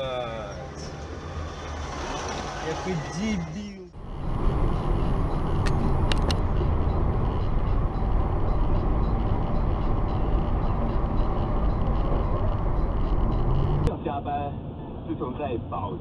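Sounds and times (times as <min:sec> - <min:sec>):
car road and engine noise: 0:00.0 - 0:16.0
sharp clicks: 0:05.5 - 0:06.5.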